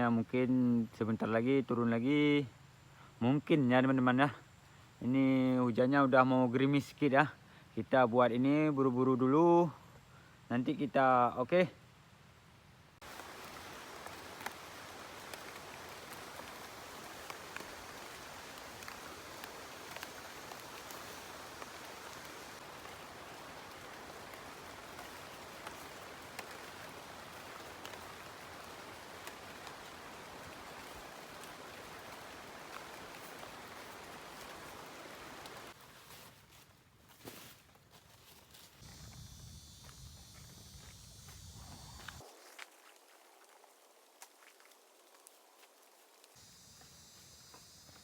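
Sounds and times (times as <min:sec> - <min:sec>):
steady rain: 0:13.0 - 0:35.8, 0:41.7 - 0:48.0
raindrops ticking: 0:13.1 - 0:35.7.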